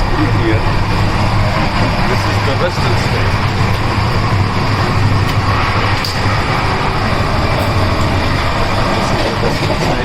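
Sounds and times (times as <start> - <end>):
train rumble and rattle: 0.0 - 10.0.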